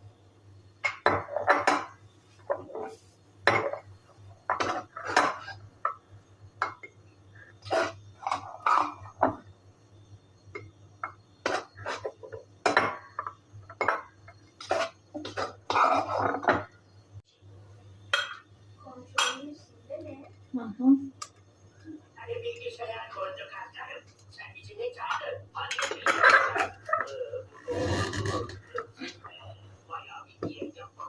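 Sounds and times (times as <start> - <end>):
utensils and dishes clattering: 0.8 - 6.0, 7.6 - 9.5, 10.5 - 16.8, 18.1 - 18.5, 19.1 - 19.5, 25.1 - 29.3.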